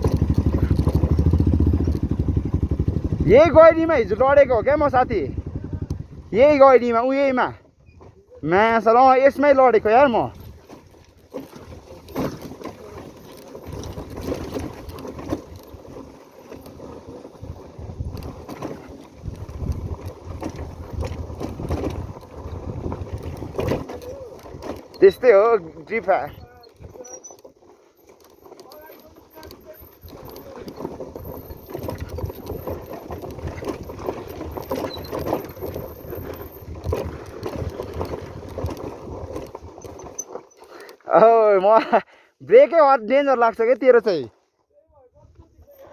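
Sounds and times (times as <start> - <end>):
knocks and rattles: 0.0 - 6.1, 9.9 - 27.0, 28.1 - 40.2
motorcycle engine running: 0.0 - 7.2, 9.5 - 27.2, 27.8 - 40.1.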